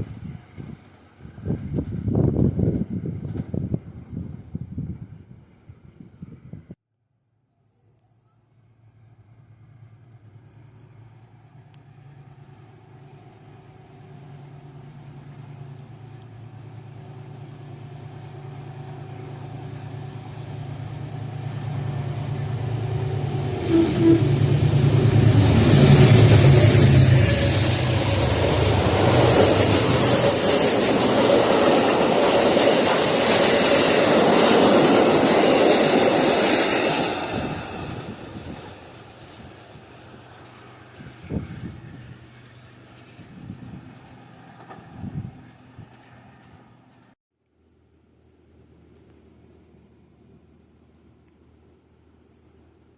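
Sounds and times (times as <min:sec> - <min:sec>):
train wheels on rails: 0:00.0 - 0:05.2, 0:09.4 - 0:47.2
diesel train engine: 0:08.8 - 0:47.2.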